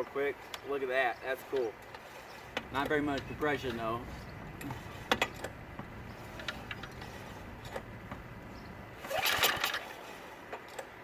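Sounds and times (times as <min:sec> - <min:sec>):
light clicks and knocks: 0:01.5 - 0:08.7
engine recoil starter pull: 0:09.0 - 0:11.0.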